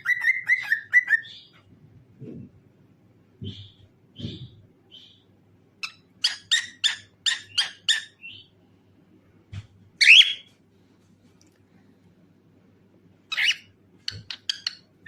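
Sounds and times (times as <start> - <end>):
cockatiel chirping: 0.0 - 1.6, 5.8 - 8.5, 10.0 - 10.5, 13.3 - 14.9.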